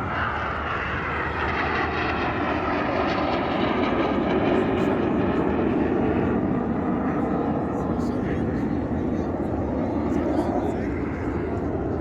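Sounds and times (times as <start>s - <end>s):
aircraft flying past: 0.0s - 12.0s.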